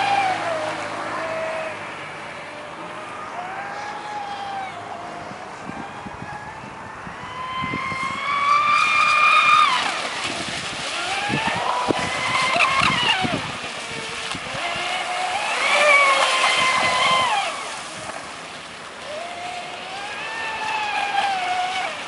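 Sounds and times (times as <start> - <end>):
electric motor whining: 10.9 - 18.1.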